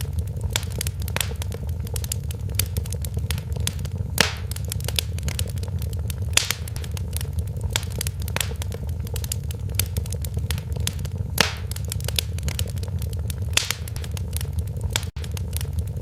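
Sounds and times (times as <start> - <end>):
low rumble of flames: 0.0 - 16.0
wood fire crackling and popping: 0.0 - 16.0.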